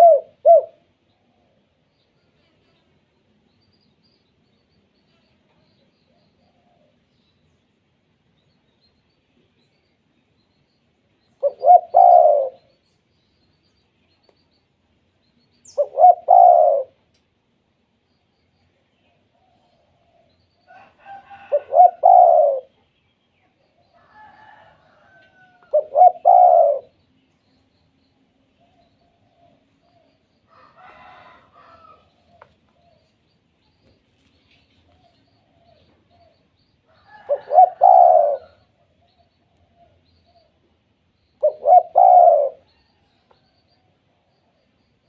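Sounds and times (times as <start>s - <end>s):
dove cooing: 0.0s - 0.8s, 11.4s - 12.7s, 15.7s - 17.0s, 21.0s - 22.7s, 24.2s - 26.9s, 37.0s - 40.4s, 41.4s - 42.7s.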